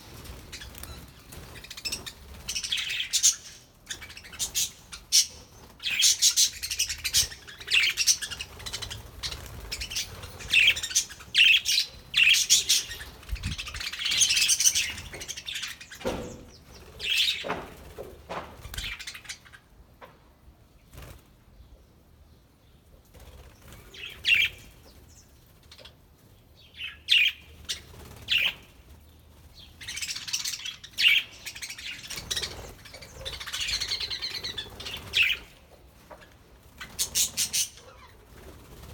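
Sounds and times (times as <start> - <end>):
wings flapping: 5.6 - 11.2, 27.6 - 30.3, 32.0 - 38.9.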